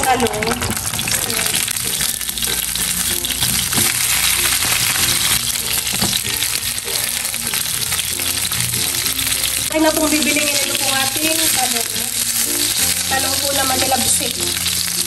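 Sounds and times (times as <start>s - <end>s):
eggplant sizzling in oil: 0.0s - 15.0s.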